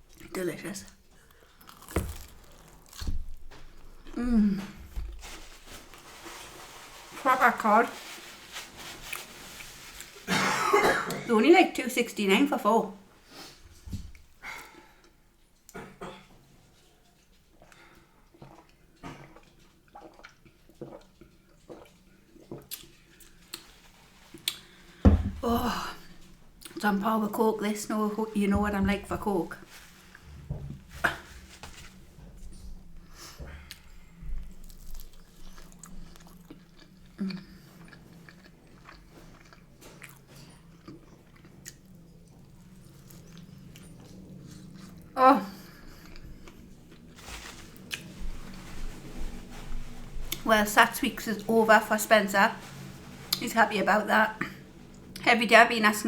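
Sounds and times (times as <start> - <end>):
person chewing and crunching food: 0.9 - 6.2, 16.7 - 26.8, 33.7 - 50.5.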